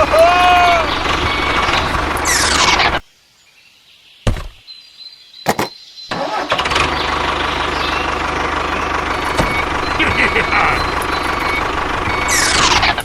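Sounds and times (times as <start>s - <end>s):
vehicle engine starting and idling: 5.5s - 13.0s.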